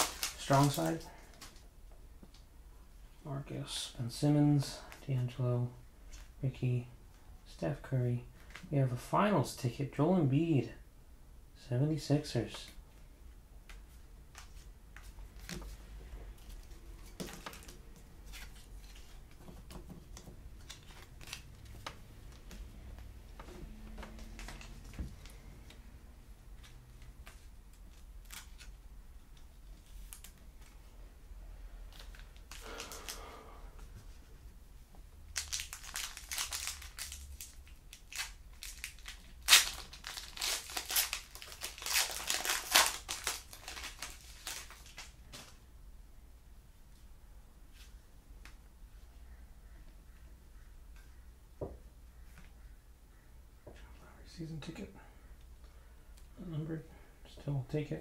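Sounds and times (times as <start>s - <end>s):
foil wrapper crinkling and tearing: 0.0s - 1.6s, 32.0s - 33.3s, 35.3s - 45.2s.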